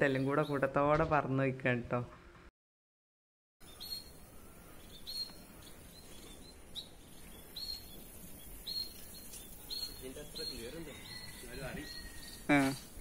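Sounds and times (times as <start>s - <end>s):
bird chirping: 0.0s - 0.8s, 3.6s - 13.0s
faint outdoor background noise: 3.6s - 13.0s.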